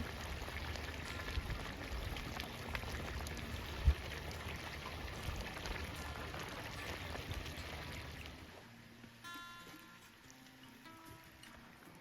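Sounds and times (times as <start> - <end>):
campfire crackling and popping: 0.0 - 8.6
pot bubbling: 0.0 - 8.6.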